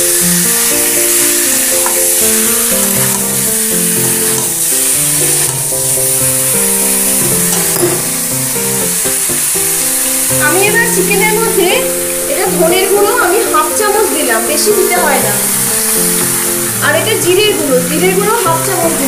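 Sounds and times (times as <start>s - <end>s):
spatula stirring: 0.0s - 13.0s
background music: 0.0s - 19.0s
chicken sizzling in a pan: 0.0s - 19.0s.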